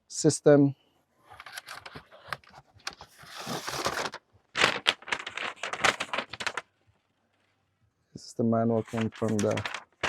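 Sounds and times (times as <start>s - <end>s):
cardboard packaging rustling: 1.3s - 6.7s, 8.8s - 10.0s.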